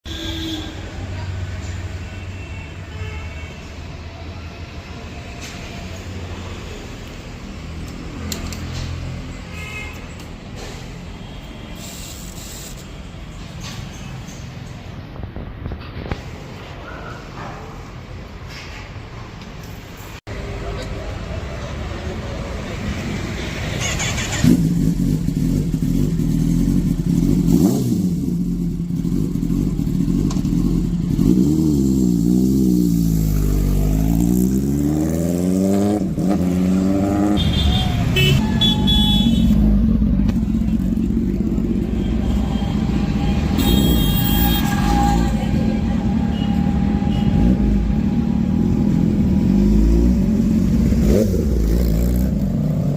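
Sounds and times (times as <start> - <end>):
motorcycle engine revving: 23.6 - 52.9.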